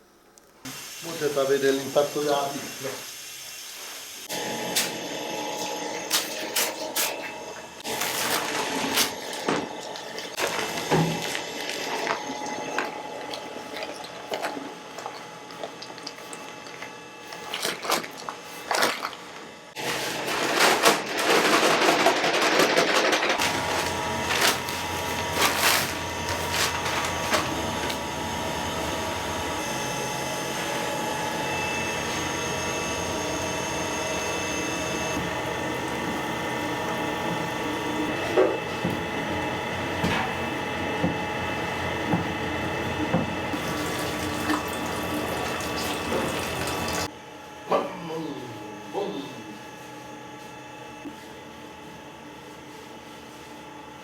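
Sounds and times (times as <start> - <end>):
machine humming: 4.2 - 51.1
knocks and clatter of work: 19.8 - 28.0, 42.0 - 44.7.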